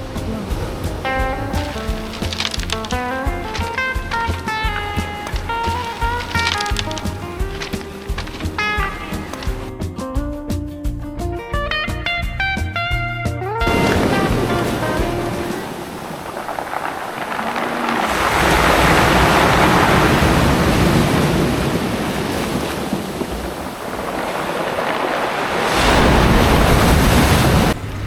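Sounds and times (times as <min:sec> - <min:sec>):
ocean surf washing in: 0:13.7 - 0:28.0.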